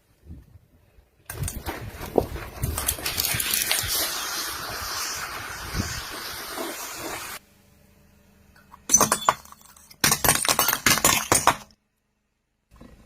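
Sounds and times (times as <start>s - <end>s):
glass cracking under a tyre: 1.4s - 4.1s, 8.8s - 11.8s
hissing noise: 2.6s - 7.4s.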